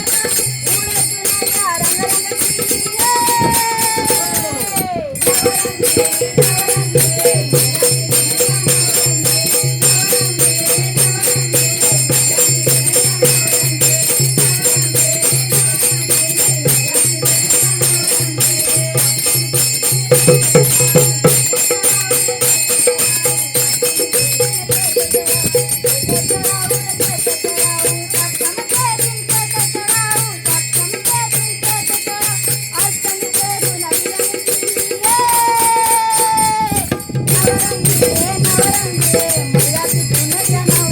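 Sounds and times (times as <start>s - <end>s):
jingling bells or rattles: 0.0s - 40.9s
low drum beat: 36.6s - 40.9s.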